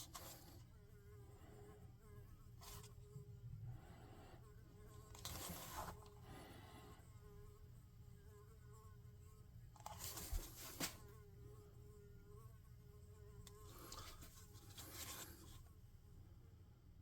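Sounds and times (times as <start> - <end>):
faint steady hum: 0.0 - 17.0
handling rustle: 5.1 - 6.1, 9.8 - 11.1, 13.5 - 15.8.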